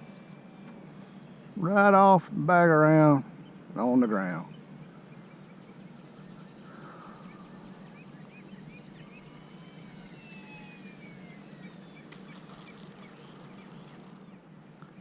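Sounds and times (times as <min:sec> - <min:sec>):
steady low hum: 0:00.0 - 0:15.0
electric model plane flying by: 0:04.8 - 0:14.7.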